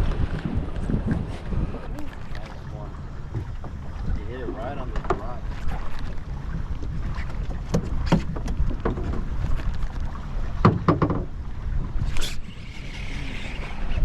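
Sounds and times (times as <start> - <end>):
water noise around boat: 0.0 - 14.0
wind: 0.0 - 14.0
sharp knocks and clicks: 10.6 - 11.3.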